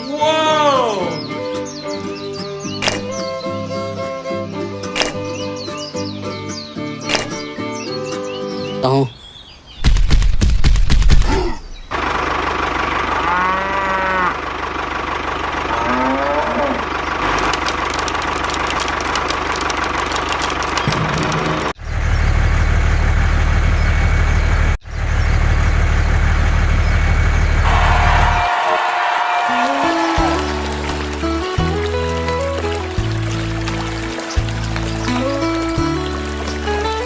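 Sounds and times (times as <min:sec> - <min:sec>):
vehicle engine running: 0:11.9 - 0:37.0
drawn-out wavering calls: 0:27.7 - 0:37.0.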